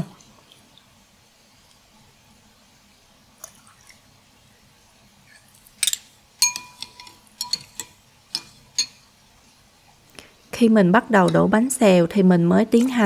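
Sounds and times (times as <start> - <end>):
metal spoon clinking against bowl: 5.8 - 9.1.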